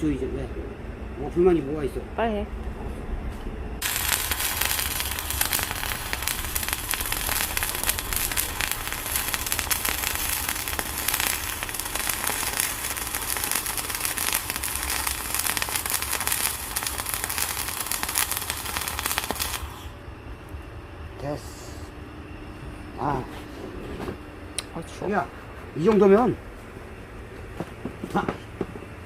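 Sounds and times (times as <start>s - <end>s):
arc welding crackle: 3.8s - 20.0s.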